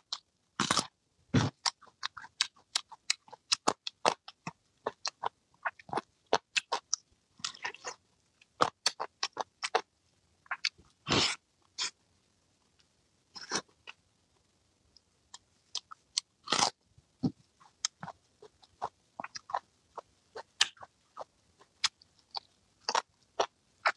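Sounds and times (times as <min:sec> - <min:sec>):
person chewing: 0:00.6 - 0:09.8, 0:15.3 - 0:19.6, 0:20.4 - 0:23.9.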